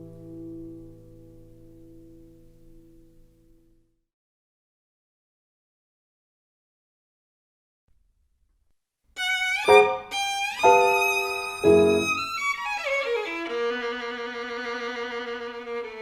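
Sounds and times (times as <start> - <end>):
violin music: 9.2 - 16.0.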